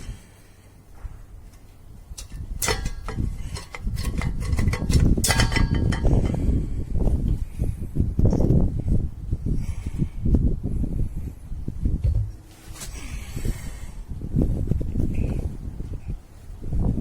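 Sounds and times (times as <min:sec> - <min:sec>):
metal parts clanking and ringing: 0:02.2 - 0:06.4
rubbing and scraping: 0:02.2 - 0:06.5.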